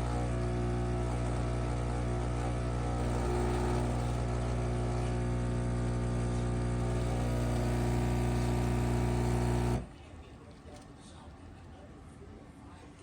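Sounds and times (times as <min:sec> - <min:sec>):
espresso machine humming: 0:00.0 - 0:09.9.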